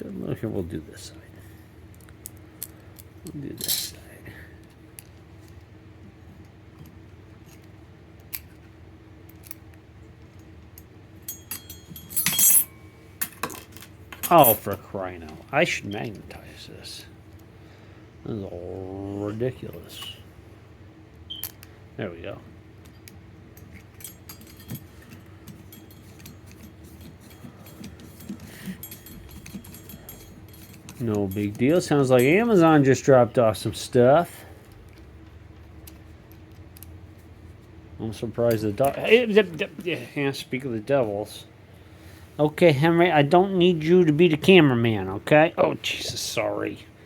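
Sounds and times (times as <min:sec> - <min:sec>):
steady low hum: 0:00.0 - 0:47.0
screws and screwdriver clinking: 0:11.2 - 0:14.8, 0:22.8 - 0:32.8.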